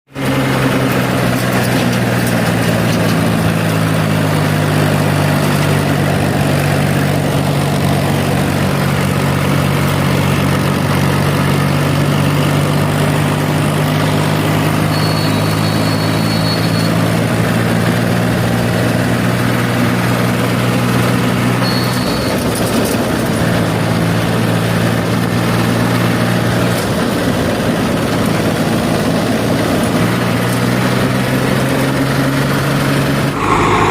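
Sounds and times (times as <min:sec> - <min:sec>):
diesel engine running: 0:00.2 - 0:33.9
short high tone: 0:33.3 - 0:33.9.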